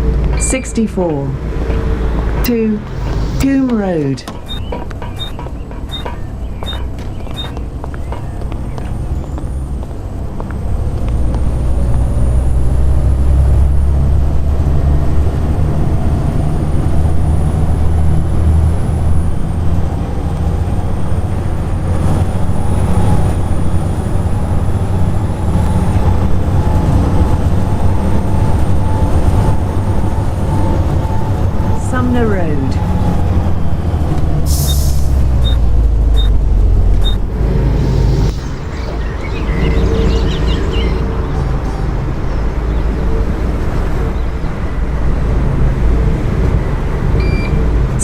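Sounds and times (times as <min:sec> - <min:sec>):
high whine: 0:00.0 - 0:09.5, 0:35.4 - 0:42.0
bus diesel engine accelerating: 0:00.0 - 0:48.0.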